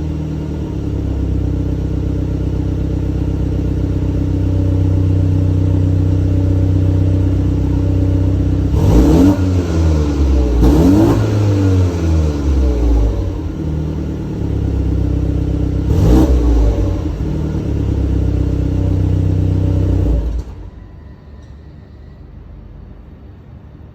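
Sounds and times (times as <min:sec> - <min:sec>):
car engine revving: 0:07.2 - 0:20.8.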